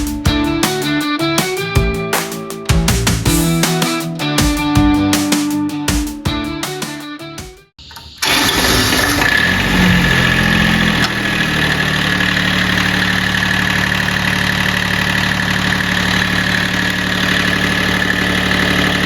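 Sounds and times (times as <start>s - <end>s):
diesel tractor engine idling: 8.2s - 19.0s.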